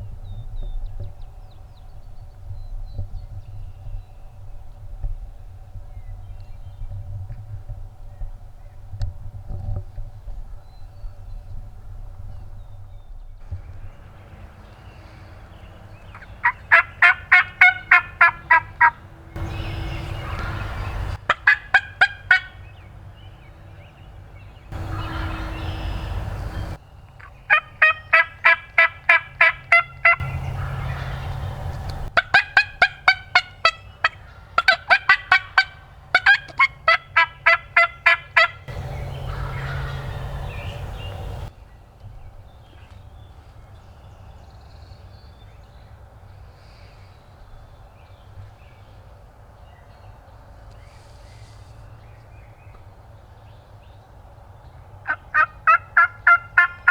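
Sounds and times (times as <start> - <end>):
turkey yelping: 16.2 - 22.6, 24.8 - 26.8, 27.5 - 41.5, 55.1 - 56.9
steady rushing noise: 38.7 - 41.5.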